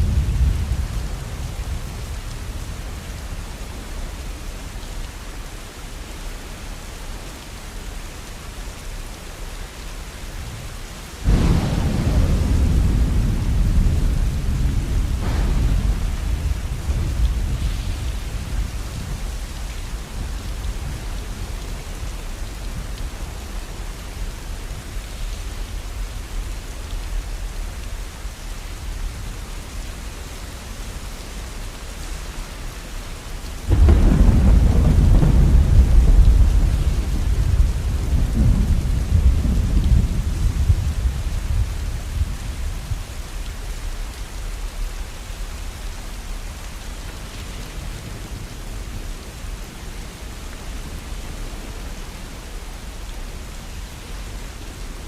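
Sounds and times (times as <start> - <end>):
steady rain: 0.0 - 55.0
thunder rolling: 11.2 - 21.6, 33.7 - 42.3.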